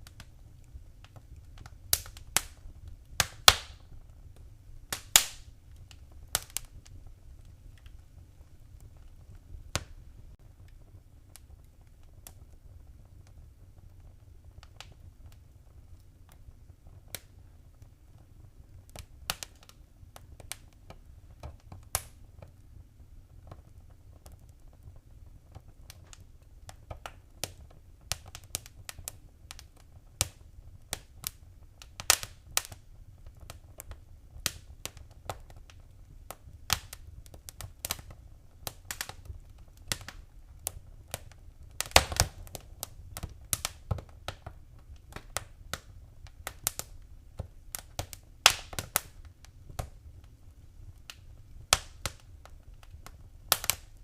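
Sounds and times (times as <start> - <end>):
fireplace fire crackling: 0.0 - 54.0.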